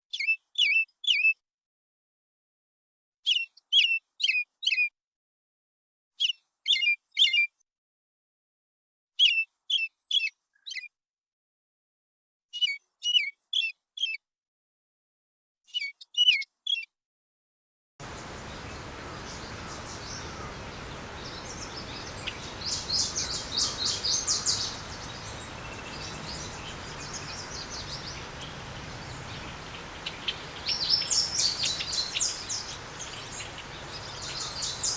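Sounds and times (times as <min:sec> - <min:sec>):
background hiss: 0:18.0 - 0:34.9
bird chirping: 0:18.0 - 0:34.9
fast high bird trill: 0:18.0 - 0:34.9.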